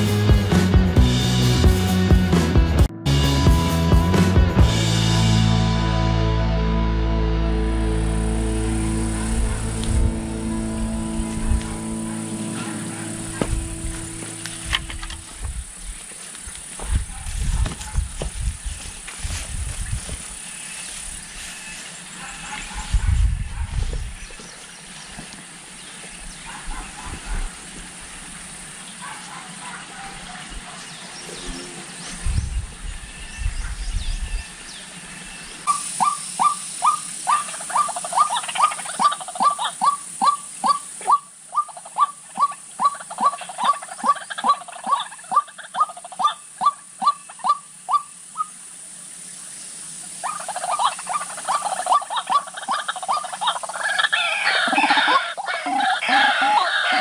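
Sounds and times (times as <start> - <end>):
steady outdoor hiss: 3.2 - 57.0
low thumps: 8.8 - 15.7
faint bird calls: 28.9 - 48.6, 50.2 - 57.0.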